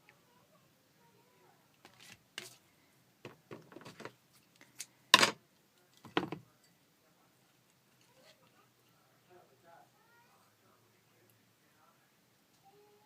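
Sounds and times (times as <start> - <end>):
objects knocking and clattering: 3.2 - 4.2, 5.1 - 5.4, 6.0 - 6.5.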